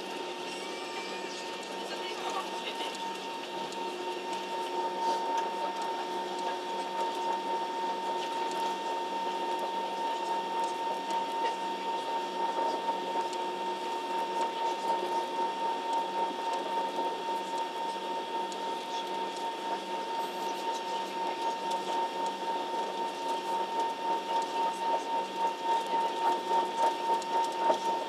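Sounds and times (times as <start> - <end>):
high whine: 0.0 - 9.4
airliner cabin drone: 0.0 - 28.0.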